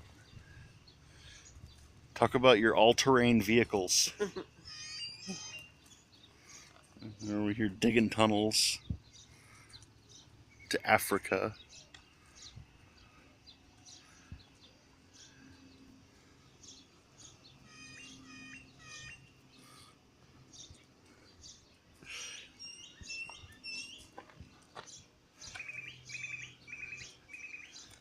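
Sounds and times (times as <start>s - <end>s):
small birds chirping: 0.0s - 28.0s
trilled bird call: 4.4s - 6.7s, 17.6s - 19.8s.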